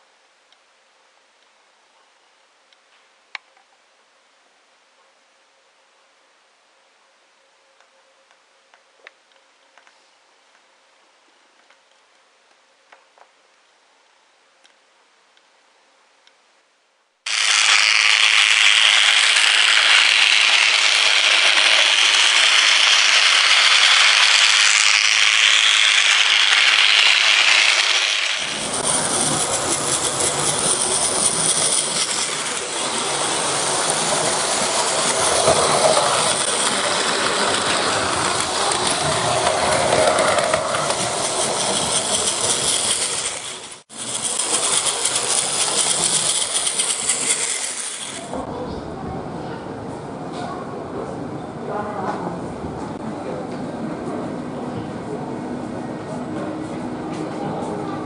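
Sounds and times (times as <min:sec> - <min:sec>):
toy train motor rattling: 0:17.3 - 0:48.4.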